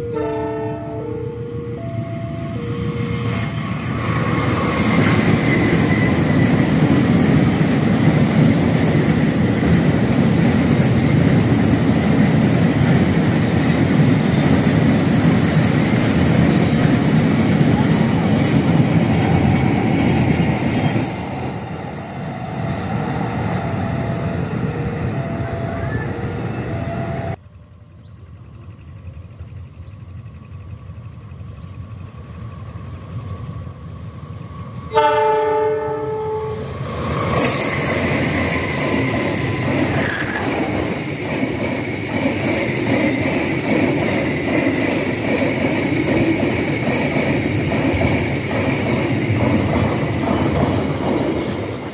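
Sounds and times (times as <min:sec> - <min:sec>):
locomotive horn: 0:00.0 - 0:03.9, 0:24.0 - 0:27.4, 0:34.9 - 0:36.8
freight train running on rails: 0:00.0 - 0:51.9.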